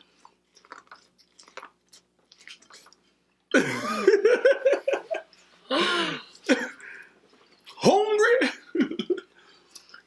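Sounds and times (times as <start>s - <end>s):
chewing and mouth clicks: 0.0s - 3.5s, 9.5s - 10.0s.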